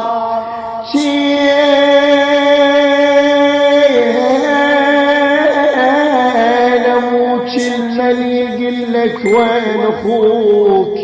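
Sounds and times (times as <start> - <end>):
man singing a held note: 8.2 - 11.0.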